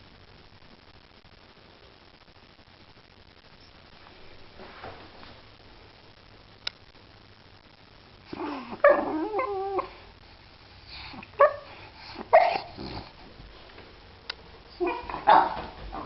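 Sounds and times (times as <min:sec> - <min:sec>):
dog whining: 0:08.3 - 0:10.0, 0:11.3 - 0:13.1, 0:14.7 - 0:16.0
dog barking: 0:08.8 - 0:10.0, 0:11.4 - 0:13.0, 0:14.8 - 0:16.0.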